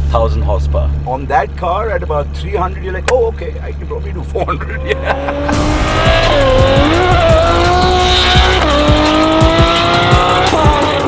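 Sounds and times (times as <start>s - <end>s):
sports car engine accelerating hard: 3.6s - 11.0s.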